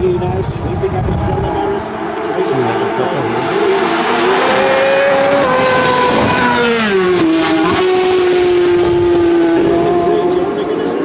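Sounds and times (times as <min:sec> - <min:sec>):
motorcycle engine at high revs passing: 0:00.0 - 0:11.0.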